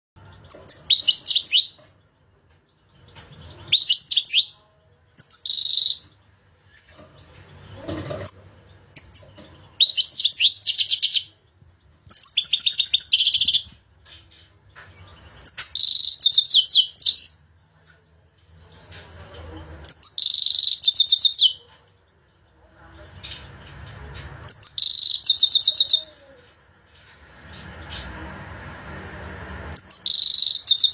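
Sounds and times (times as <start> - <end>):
goldfinch singing: 5.2 - 6.2, 7.5 - 11.4, 15.0 - 17.4, 19.9 - 21.6, 24.5 - 26.1, 29.7 - 30.9.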